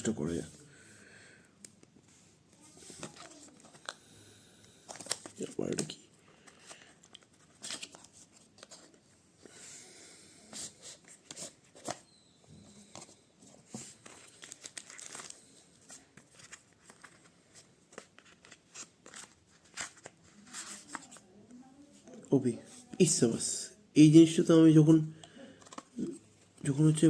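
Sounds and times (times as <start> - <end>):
packaging tearing and crinkling: 14.1 - 15.4.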